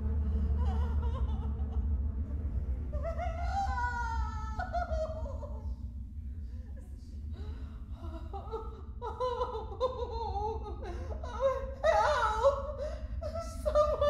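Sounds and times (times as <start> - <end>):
person laughing: 0.4 - 2.2, 2.9 - 5.7, 8.0 - 14.0.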